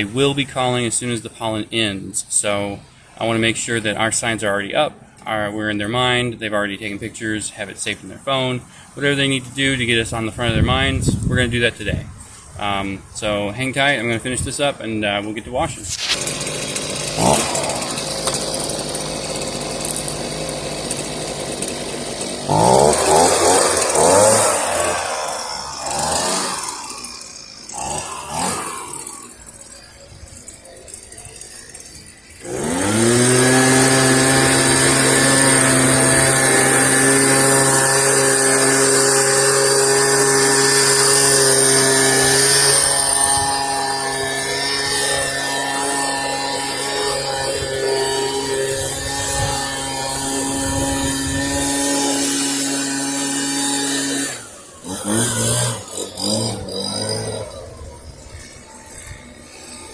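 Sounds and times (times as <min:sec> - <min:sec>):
leaf blower engine revving: 0:14.0 - 0:59.9.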